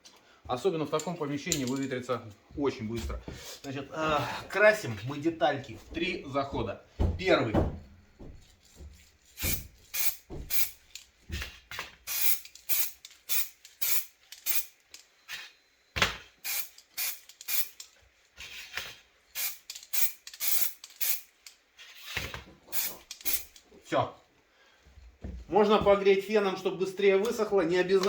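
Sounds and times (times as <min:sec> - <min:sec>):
aerosol can spraying: 0:09.4 - 0:10.8, 0:12.1 - 0:14.7, 0:22.7 - 0:23.6.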